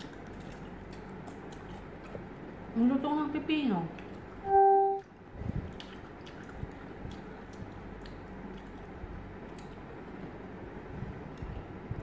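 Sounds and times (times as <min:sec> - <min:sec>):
chewing crunchy gherkin: 0:00.0 - 0:02.4, 0:05.6 - 0:10.2.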